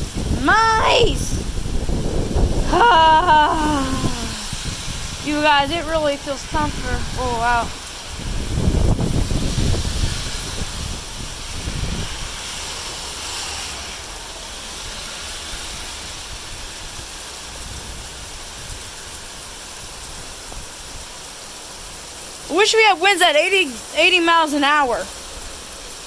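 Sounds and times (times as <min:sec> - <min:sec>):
wind buffeting microphone: 0:00.0 - 0:12.7, 0:15.5 - 0:21.2
heavy wind-driven rain: 0:00.0 - 0:26.0.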